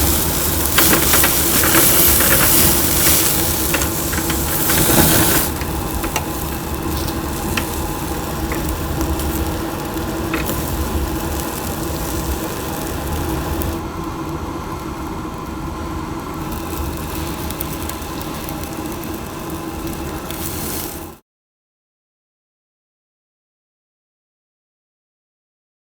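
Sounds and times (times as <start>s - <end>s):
sharp crackles: 0.0s - 15.2s, 16.2s - 21.2s
chicken sizzling on a grill: 0.0s - 21.2s
steady hum: 0.0s - 21.2s.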